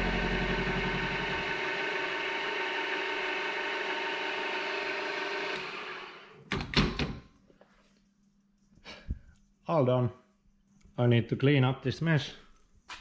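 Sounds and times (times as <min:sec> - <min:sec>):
milling machine running: 0:00.0 - 0:06.2.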